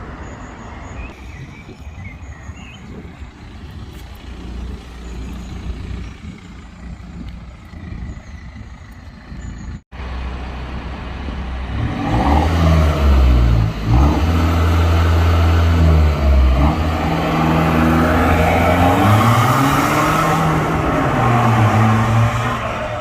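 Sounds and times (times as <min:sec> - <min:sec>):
loud diesel engine revving: 0:11.6 - 0:23.0.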